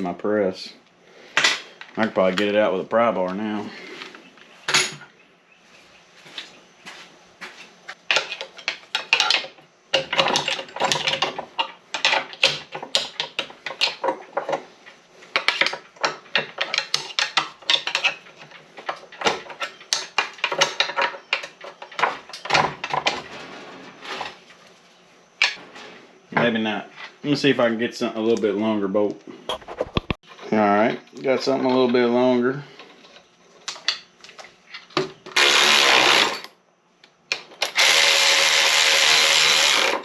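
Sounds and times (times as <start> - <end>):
metal tools clanking and scraping: 4.6 - 5.1, 8.0 - 14.7.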